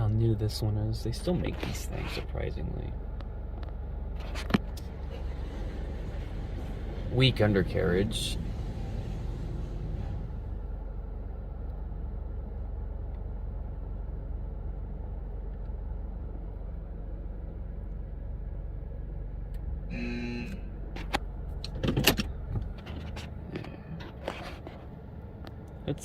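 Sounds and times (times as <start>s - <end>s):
car engine idling: 0.0s - 26.0s
short tone: 19.9s - 20.8s.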